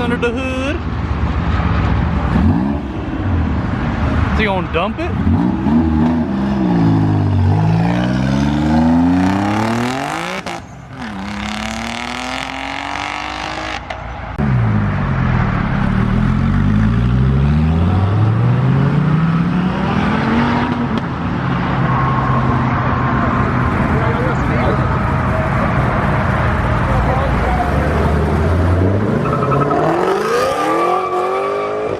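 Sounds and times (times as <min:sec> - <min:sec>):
engine revving: 0:05.1 - 0:15.0, 0:15.7 - 0:21.0, 0:23.4 - 0:31.9.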